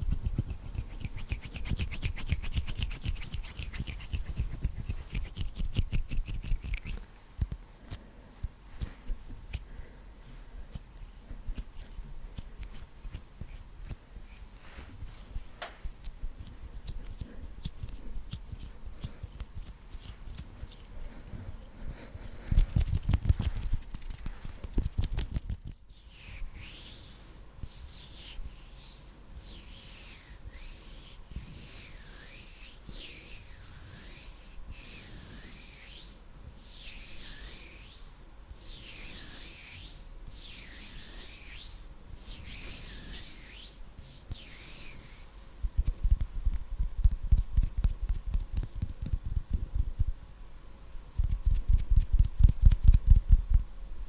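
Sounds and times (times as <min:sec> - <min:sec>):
hands rubbing together: 0:00.0 - 0:07.0, 0:22.2 - 0:46.3.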